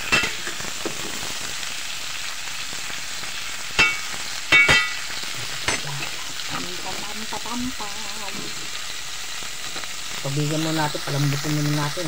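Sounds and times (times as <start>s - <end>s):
food sizzling in a metal pot: 0.0s - 12.0s.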